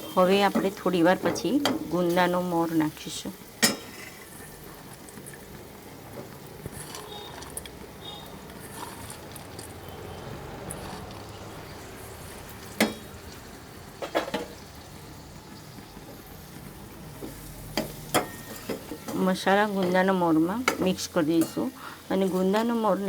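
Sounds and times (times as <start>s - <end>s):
masala frying in oil: 0.0s - 23.0s
spoon knocking on pan: 17.2s - 20.0s, 20.6s - 21.7s.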